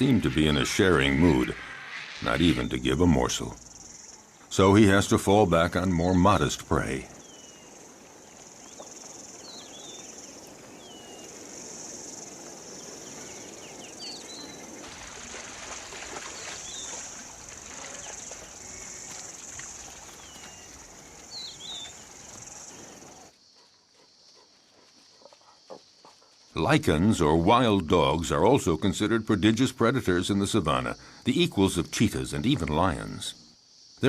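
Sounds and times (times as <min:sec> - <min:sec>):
high insect drone: 0:00.0 - 0:27.1.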